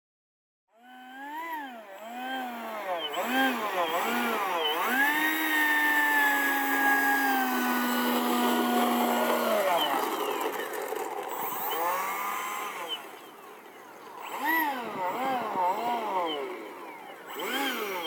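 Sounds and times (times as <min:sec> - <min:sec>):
electric ducted fan whining: 0:00.8 - 0:18.0.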